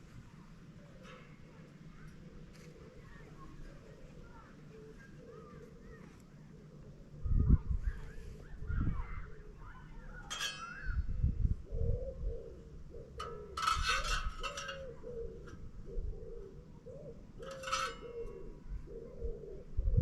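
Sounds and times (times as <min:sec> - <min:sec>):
pigeon cooing: 0:00.8 - 0:20.0
wind on microphone: 0:07.2 - 0:12.6, 0:18.5 - 0:20.0.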